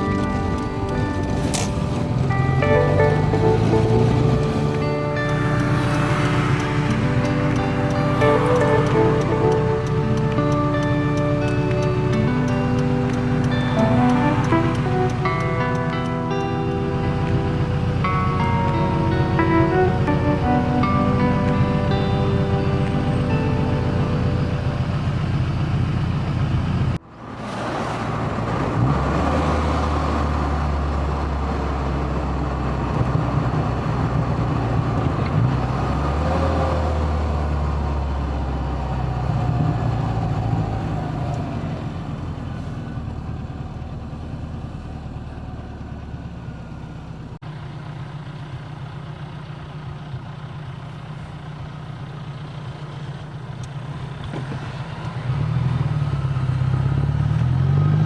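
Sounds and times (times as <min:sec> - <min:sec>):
car engine drone: 0:00.0 - 0:58.0
road noise: 0:00.0 - 0:58.0.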